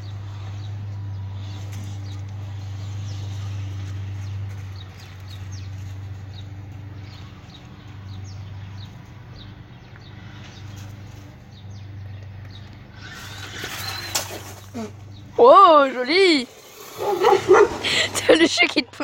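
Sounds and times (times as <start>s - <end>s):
birds chirping: 0.0s - 19.0s
low hum: 0.0s - 19.0s.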